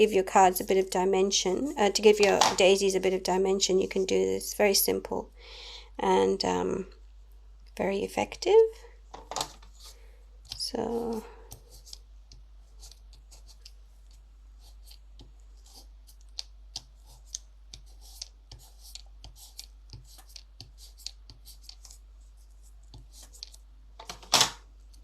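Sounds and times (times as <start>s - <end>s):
paper handling clicks and scratches: 9.6s - 25.0s.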